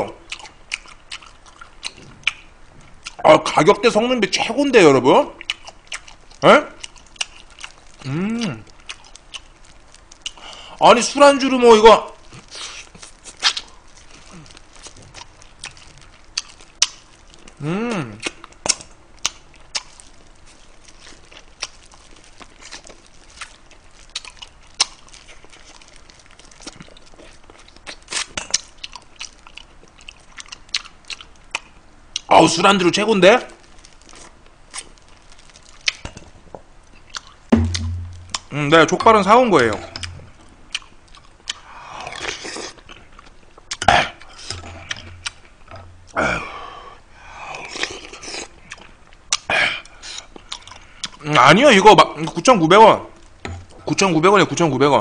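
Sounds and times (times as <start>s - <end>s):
person chewing: 0.2s - 3.2s, 5.4s - 10.8s, 12.1s - 32.3s, 33.6s - 51.3s
loud sharp mouth sound: 37.5s - 38.6s
mouth smacks: 43.6s - 46.4s, 47.5s - 51.2s.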